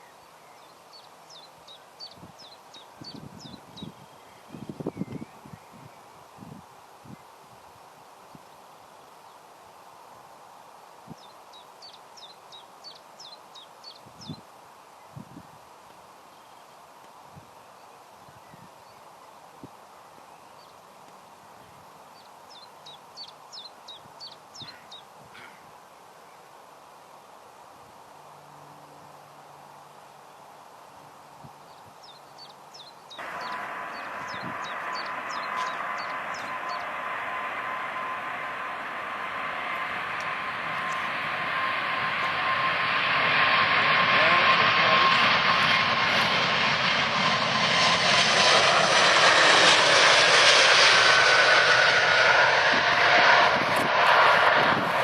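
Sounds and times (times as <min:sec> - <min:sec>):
outdoor background hiss: 0:00.0 - 0:42.4
small bird chirping: 0:31.7 - 0:37.0
jet aircraft roar: 0:33.2 - 0:55.0.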